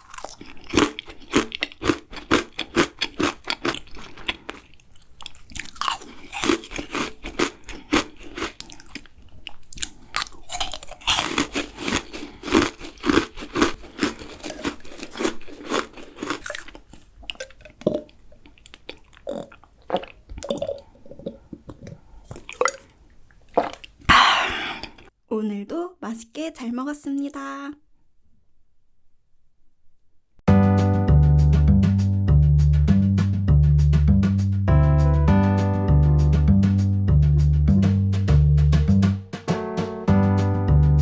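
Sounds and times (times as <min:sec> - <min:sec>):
mouth chewing and crunching: 0:00.0 - 0:25.1.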